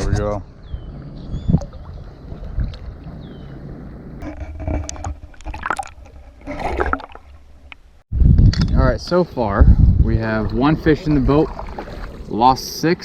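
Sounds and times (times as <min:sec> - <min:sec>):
water splashing and sloshing: 0:00.7 - 0:08.0, 0:10.2 - 0:13.0.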